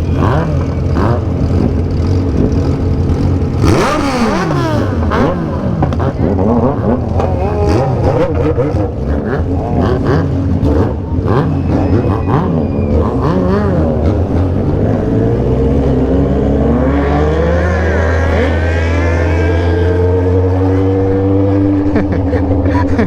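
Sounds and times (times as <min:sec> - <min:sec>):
motorcycles revving and accelerating: 0:00.0 - 0:23.0.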